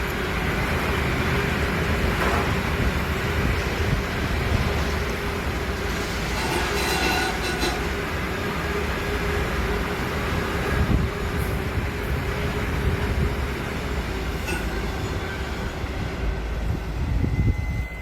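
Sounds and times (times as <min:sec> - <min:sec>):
rail vehicle rumbling on track: 0:00.0 - 0:18.0
wheel squeals: 0:06.3 - 0:08.0.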